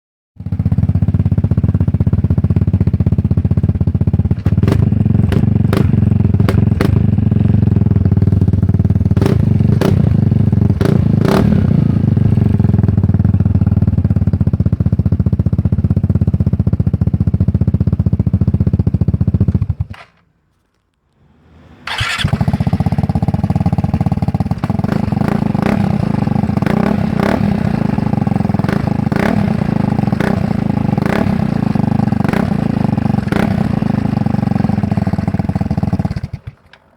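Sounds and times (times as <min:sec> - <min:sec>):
scooter engine running: 0:00.4 - 0:20.0, 0:21.8 - 0:36.9
engine starter whirr: 0:21.2 - 0:23.4.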